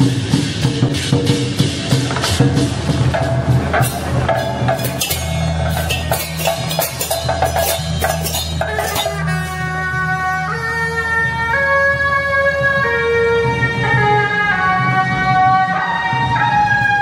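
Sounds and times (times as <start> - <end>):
sharp clacking strikes: 0.0 - 9.8
drums: 0.0 - 17.0.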